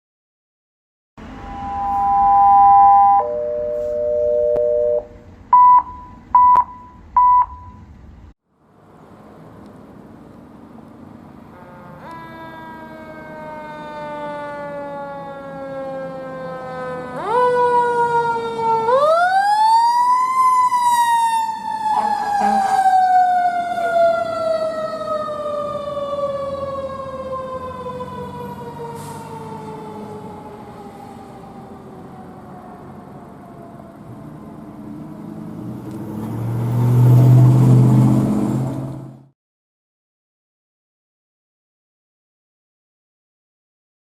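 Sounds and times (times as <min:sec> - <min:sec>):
fire engine siren wailing: 0:01.2 - 0:05.1, 0:11.4 - 0:38.4.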